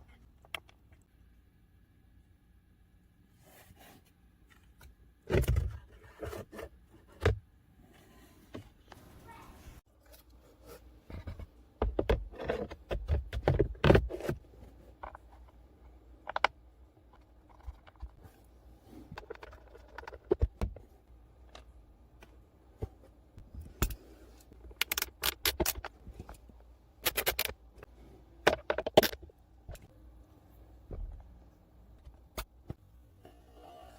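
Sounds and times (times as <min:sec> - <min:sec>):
tools and parts clicking and scraping: 0:12.1 - 0:20.7, 0:21.4 - 0:29.9.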